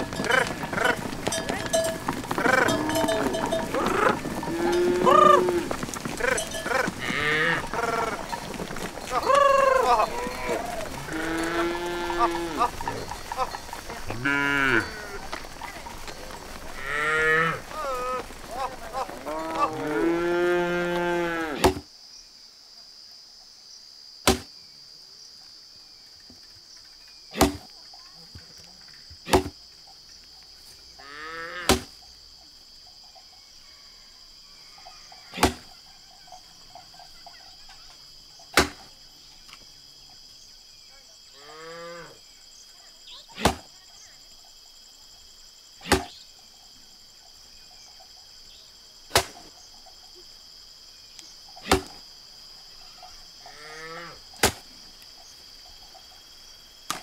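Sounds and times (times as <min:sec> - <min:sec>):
cattle lowing: 0:00.0 - 0:21.6
crickets chirring: 0:00.0 - 0:57.0
axe chopping a log: 0:21.6 - 0:21.9, 0:24.2 - 0:24.5, 0:27.4 - 0:27.7, 0:29.3 - 0:29.5, 0:31.7 - 0:31.9, 0:35.4 - 0:35.6, 0:38.6 - 0:38.8, 0:43.4 - 0:43.7, 0:45.9 - 0:46.1, 0:49.1 - 0:49.4, 0:51.7 - 0:52.0, 0:54.4 - 0:54.7.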